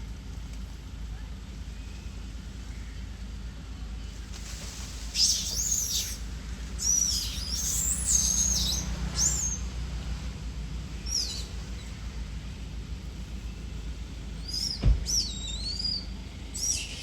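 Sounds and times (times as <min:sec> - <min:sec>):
low hum: 0:00.0 - 0:17.0
monkeys squealing: 0:05.2 - 0:06.2, 0:06.8 - 0:09.7, 0:16.6 - 0:17.0.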